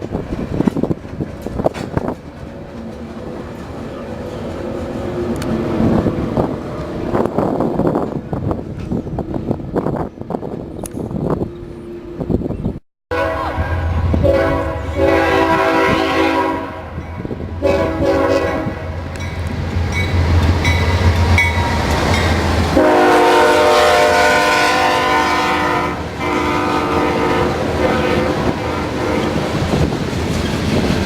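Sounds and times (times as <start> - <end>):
locomotive air horn blasts: 13.1 - 17.0, 17.6 - 19.0, 22.7 - 29.6.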